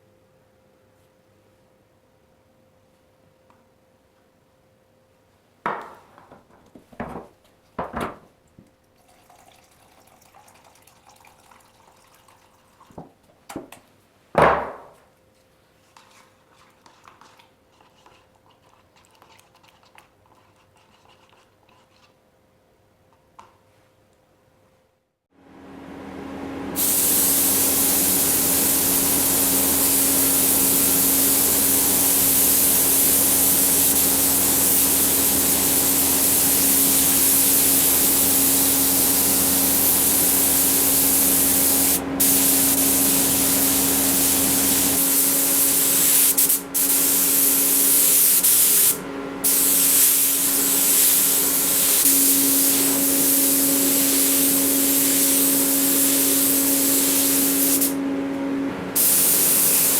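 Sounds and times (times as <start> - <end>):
spray gun hissing: 26.8 - 58.0, 59.0 - 59.9.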